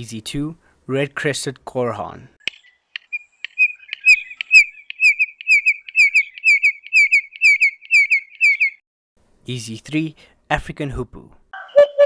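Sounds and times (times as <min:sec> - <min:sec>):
bird clicks: 0:02.4 - 0:08.7
bird piping double whistles: 0:03.0 - 0:08.8.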